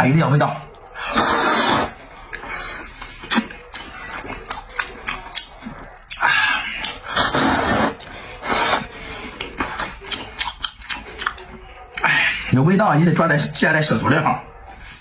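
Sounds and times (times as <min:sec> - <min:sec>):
wet mouth clicks and chewing: 0:00.8 - 0:12.1
noodle slurps: 0:01.0 - 0:02.0, 0:06.9 - 0:10.6.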